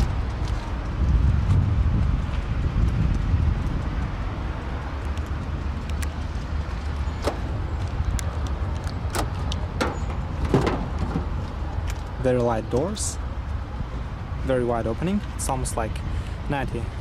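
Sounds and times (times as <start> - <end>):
low rumble: 0.0 - 12.1
car door latch clicks: 7.2 - 7.6, 9.1 - 11.4.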